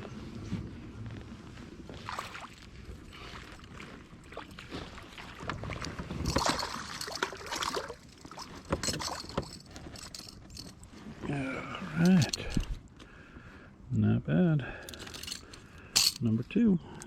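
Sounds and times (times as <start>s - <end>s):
water splashing around kayak: 1.9s - 9.4s.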